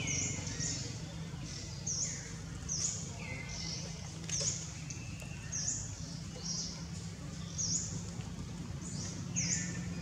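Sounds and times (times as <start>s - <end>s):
bird chirping: 0.0s - 6.8s.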